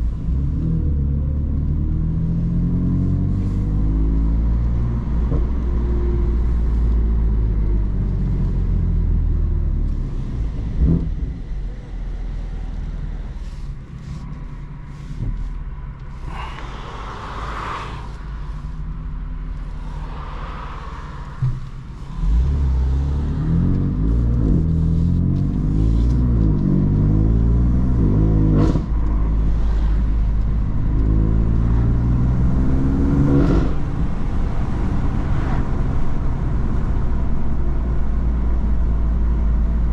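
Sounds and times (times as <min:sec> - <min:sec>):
car engine revving: 0:16.1 - 0:37.6.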